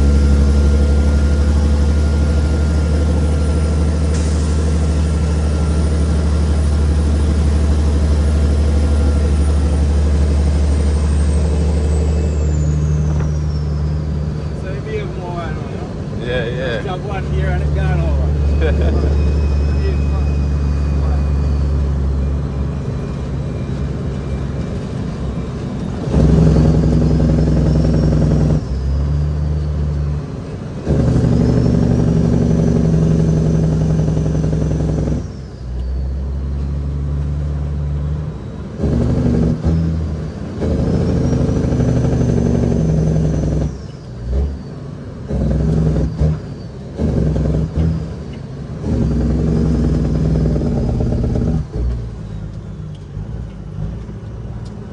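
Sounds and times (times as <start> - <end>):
truck diesel engine pulling hard: 0.0 - 54.9
turbo whistle: 17.8 - 22.3, 26.1 - 29.4.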